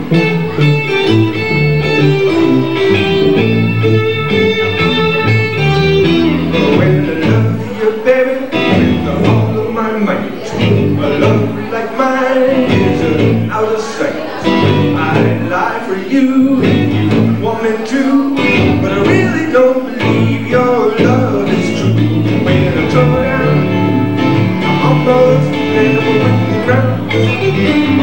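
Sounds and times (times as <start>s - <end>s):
bending lead guitar lines: 0.0s - 28.0s
live blues band playing: 0.0s - 28.0s
walking bass line: 0.0s - 28.0s.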